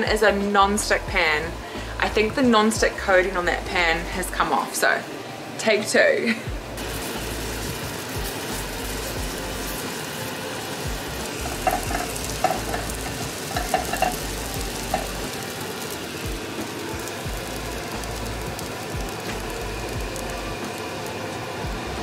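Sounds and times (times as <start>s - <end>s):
cheese sizzling in a frying pan: 6.8s - 22.0s
spatula tapping a pan: 11.4s - 14.3s.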